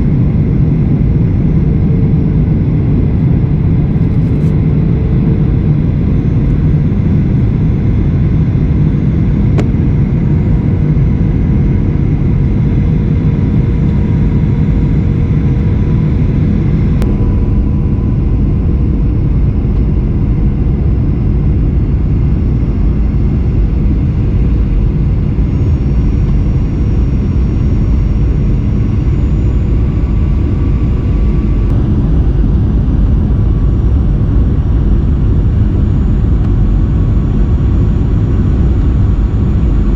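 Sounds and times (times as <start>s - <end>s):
airliner engine and airflow rumble: 0.0s - 39.9s
faint steady hum: 0.0s - 39.9s.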